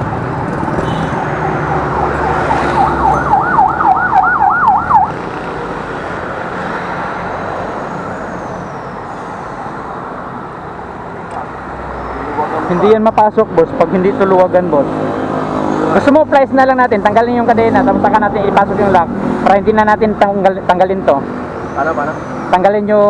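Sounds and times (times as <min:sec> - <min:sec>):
siren yelping: 0:00.0 - 0:05.2
road traffic noise: 0:00.0 - 0:23.0.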